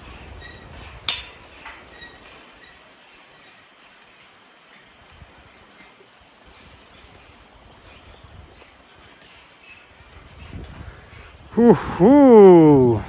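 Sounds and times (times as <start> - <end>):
metallic clank on steel deck: 0.0 - 2.8
faint metal clinks: 0.0 - 13.0
outdoor background noise: 0.0 - 13.0.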